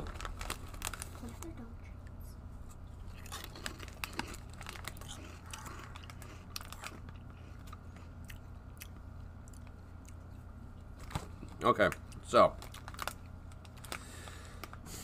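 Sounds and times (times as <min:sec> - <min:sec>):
crunching chips in mouth: 0:03.0 - 0:10.4, 0:11.0 - 0:14.8.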